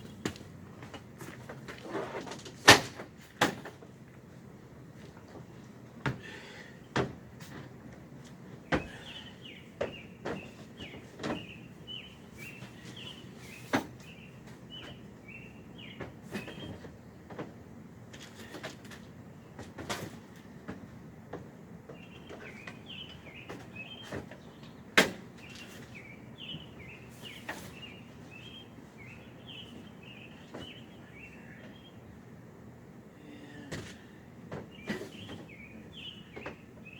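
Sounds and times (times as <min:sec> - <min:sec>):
bird chirping: 0:08.7 - 0:16.9, 0:21.9 - 0:32.0, 0:34.7 - 0:36.9
camping gear knocking and thumping: 0:09.8 - 0:11.6.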